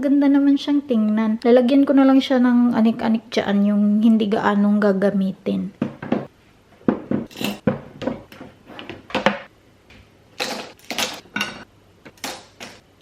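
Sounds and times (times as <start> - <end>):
knives clinking into a drawer: 7.3 - 7.6.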